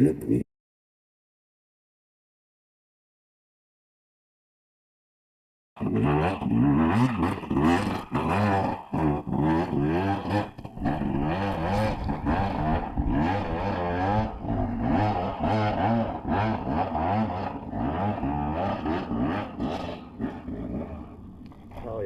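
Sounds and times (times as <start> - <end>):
dirt bike engine revving: 5.8 - 22.0.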